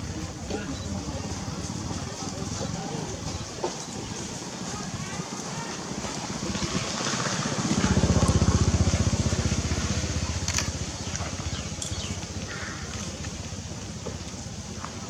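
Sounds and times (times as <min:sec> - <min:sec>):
small engine passing by: 0:00.0 - 0:15.0
sharp clicks: 0:10.4 - 0:12.1.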